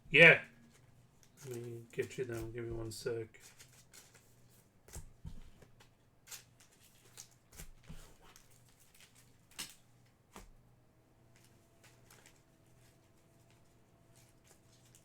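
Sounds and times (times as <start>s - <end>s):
soft handling taps and rustles: 0.6s - 10.6s.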